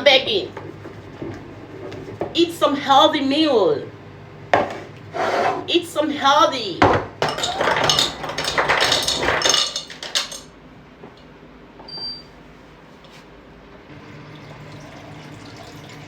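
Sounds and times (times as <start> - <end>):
dishes clattering: 6.8 - 10.5.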